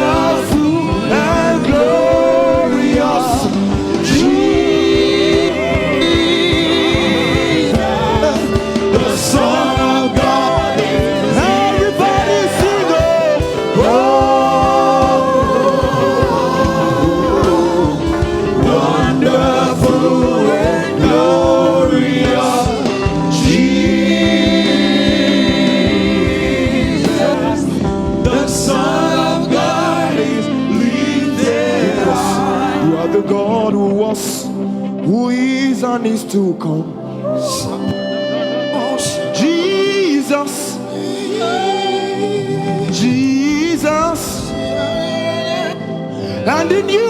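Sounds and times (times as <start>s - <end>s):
held accompaniment: 0.0s - 47.0s
voices singing gospel melody: 0.0s - 47.0s.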